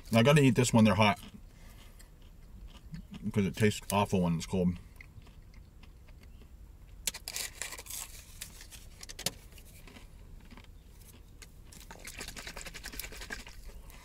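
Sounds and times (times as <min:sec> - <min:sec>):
crisp food being chewed: 0:00.0 - 0:14.0.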